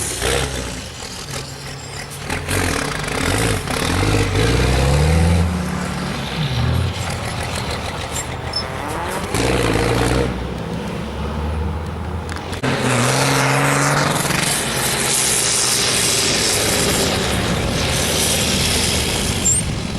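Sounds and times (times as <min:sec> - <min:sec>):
truck engine revving: 0:00.0 - 0:19.9.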